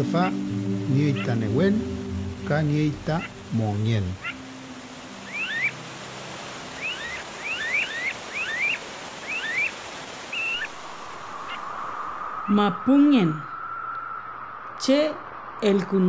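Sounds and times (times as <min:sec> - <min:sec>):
fast-flowing river rushing: 0:00.0 - 0:11.4
bird rising chirps: 0:04.2 - 0:05.8, 0:06.6 - 0:15.6.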